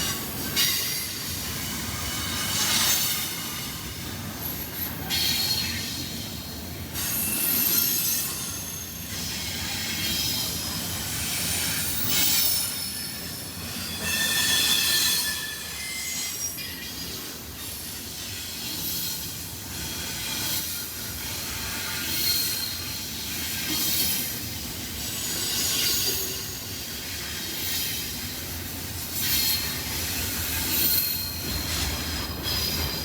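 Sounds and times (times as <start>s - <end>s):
steel wheels squealing on rails: 0.0s - 33.0s
freight train rumbling past: 22.9s - 33.0s.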